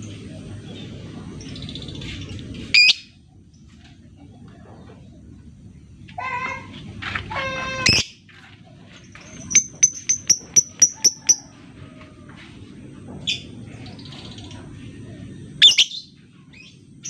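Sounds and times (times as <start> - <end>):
lovebird clicking chirps: 9.5 - 11.4.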